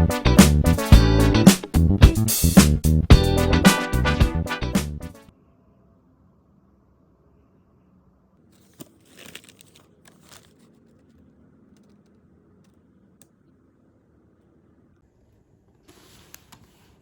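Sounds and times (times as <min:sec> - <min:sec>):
wrapping crinkling and rustling: 0:08.5 - 0:12.1.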